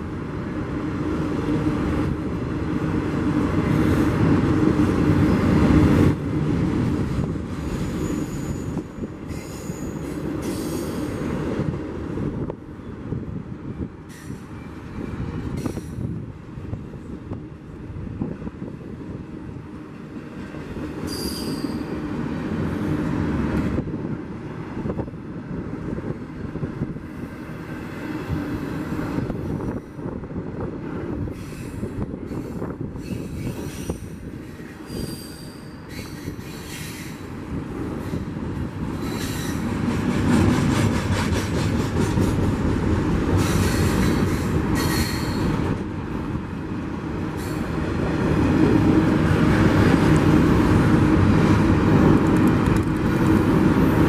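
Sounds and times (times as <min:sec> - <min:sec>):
freight train wheels rumbling: 0:00.0 - 0:54.0
high-pitched wheel squeals: 0:07.7 - 0:11.0, 0:21.1 - 0:21.9, 0:32.4 - 0:37.2.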